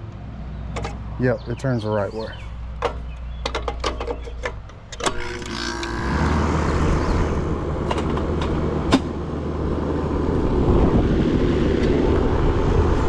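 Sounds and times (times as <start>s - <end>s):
air conditioner fan running: 4.4s - 13.0s.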